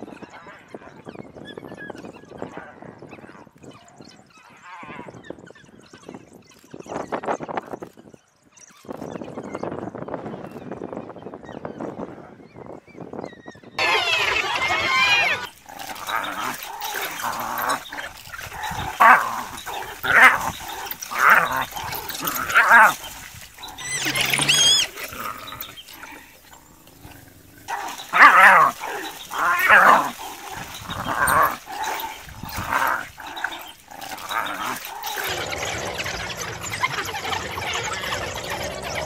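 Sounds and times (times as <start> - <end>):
wild dogs yelping and whining: 13.2 - 39.0
high animal squeal: 13.8 - 39.0.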